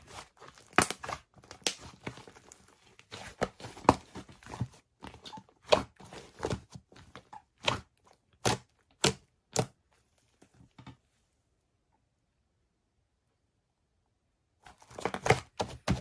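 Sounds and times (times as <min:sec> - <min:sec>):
slime popping and crackling: 0:00.6 - 0:01.9.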